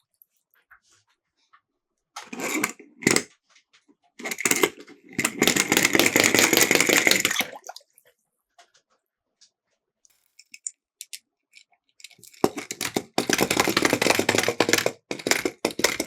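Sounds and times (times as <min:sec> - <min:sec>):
toy cars rattling down plastic slope: 0:02.2 - 0:03.3, 0:04.2 - 0:07.5, 0:12.0 - 0:16.0.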